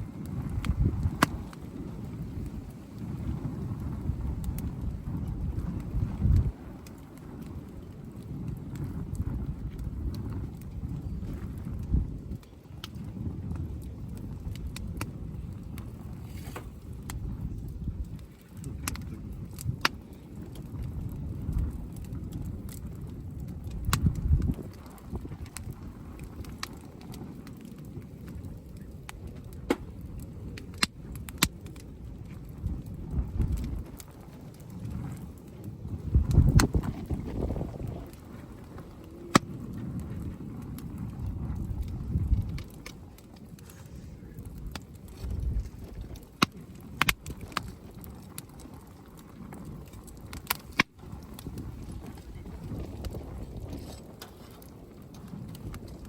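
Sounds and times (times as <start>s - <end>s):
campfire crackling: 0.0s - 56.0s
sharp pops from fire: 0.0s - 56.0s
low steady rumble: 34.8s - 46.4s.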